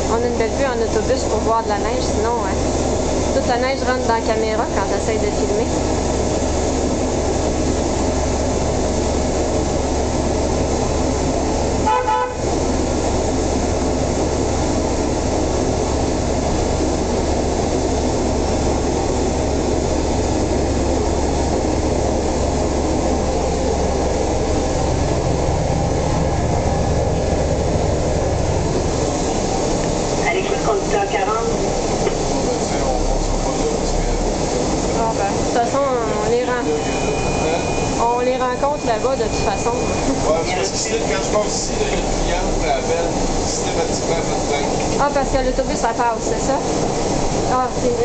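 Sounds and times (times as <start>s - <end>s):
bus engine drone and road noise: 0.0s - 48.0s
bus horn toot: 11.8s - 12.6s.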